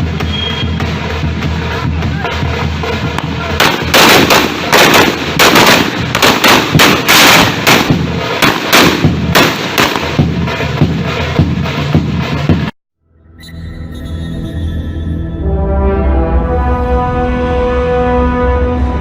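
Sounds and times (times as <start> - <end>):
fireworks banging: 0.0 - 12.7.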